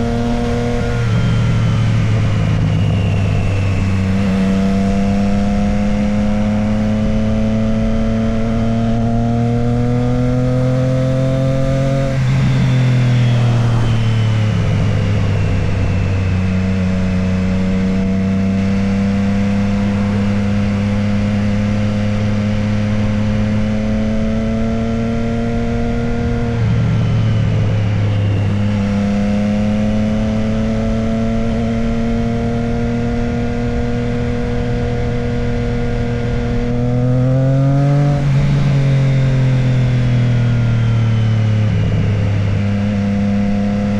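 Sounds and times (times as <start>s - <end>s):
motorcycle engine revving: 0.0s - 43.9s
wind noise: 0.0s - 43.9s.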